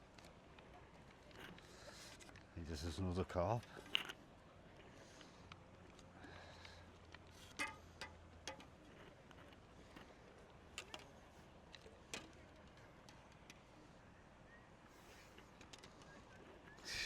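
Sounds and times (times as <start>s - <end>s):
fishing tackle clicks and taps: 5.2s - 13.6s.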